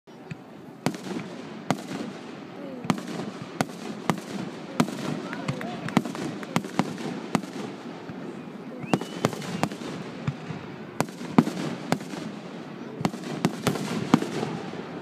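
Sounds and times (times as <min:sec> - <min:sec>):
fireworks bangs and pops: 0:00.3 - 0:15.0.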